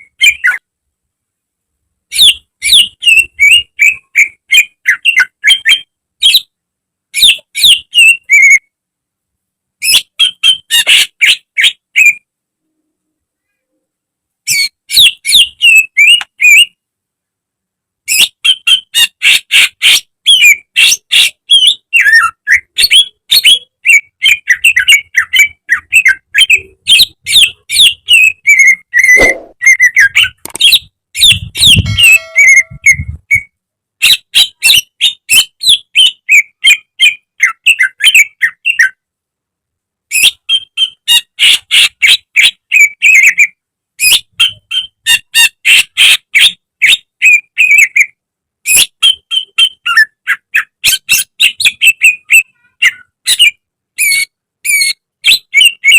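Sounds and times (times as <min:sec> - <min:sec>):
bird singing chattering notes: 0:18.1 - 0:38.8.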